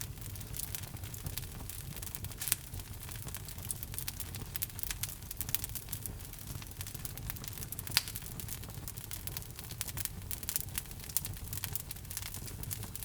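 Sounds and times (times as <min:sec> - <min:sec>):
loud pop of burning wood: 0:00.0 - 0:04.2, 0:07.5 - 0:08.6
low rumble of flame: 0:00.0 - 0:13.0
wood fire crackling: 0:00.0 - 0:13.0.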